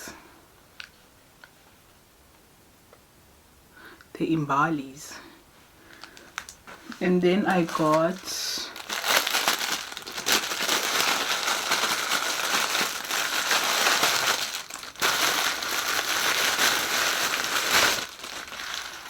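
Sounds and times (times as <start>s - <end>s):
plastic packaging crinkling: 5.8s - 19.0s.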